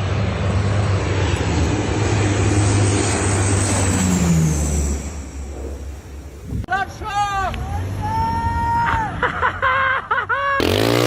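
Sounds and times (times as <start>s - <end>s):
large engine humming: 0.0s - 6.5s.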